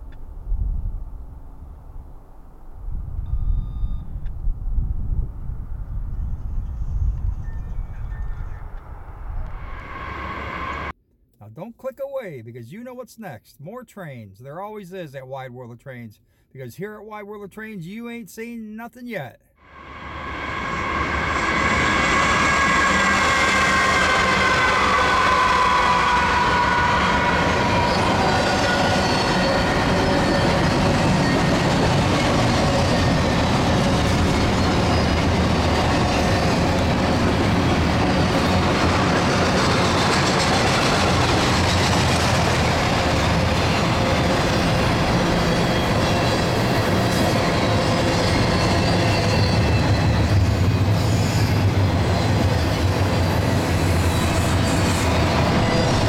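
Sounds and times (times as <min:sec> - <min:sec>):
diesel locomotives passing: 0:06.6 - 0:10.9, 0:19.6 - 0:56.0
train wheels on rails: 0:19.8 - 0:56.0.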